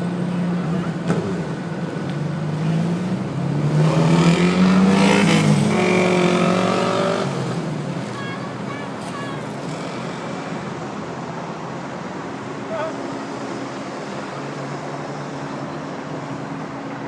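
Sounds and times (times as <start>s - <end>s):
vehicles driving past: 0.0s - 17.0s
engine speeding up: 0.3s - 8.0s.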